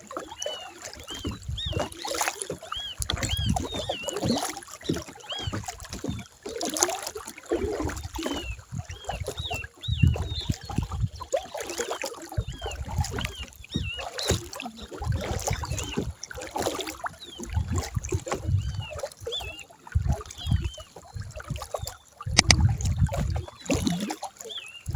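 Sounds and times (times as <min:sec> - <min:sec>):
water splashing: 0:22.4 - 0:22.9.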